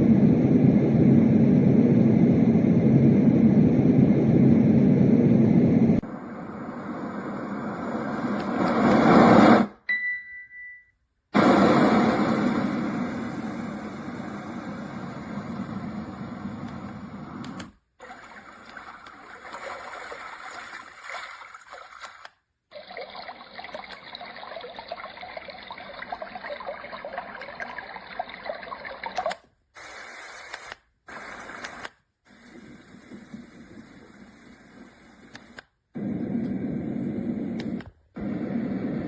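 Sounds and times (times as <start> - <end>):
white noise: 0.0 - 9.8, 11.4 - 17.8, 29.8 - 39.0
water-like sounds: 18.0 - 29.4.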